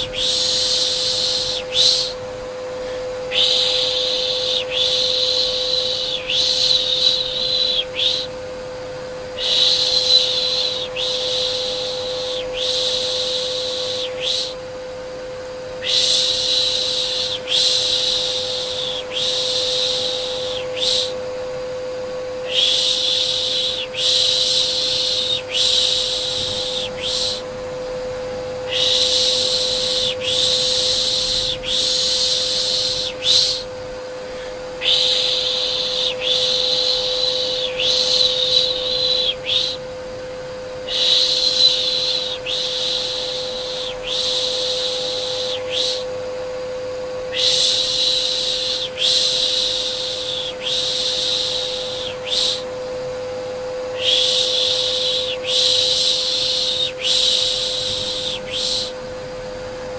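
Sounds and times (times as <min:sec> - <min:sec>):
vacuum cleaner hum: 0:00.0 - 0:59.9
person shushing: 0:02.8 - 0:08.3, 0:22.4 - 0:27.5, 0:28.7 - 0:39.8, 0:53.9 - 0:59.0.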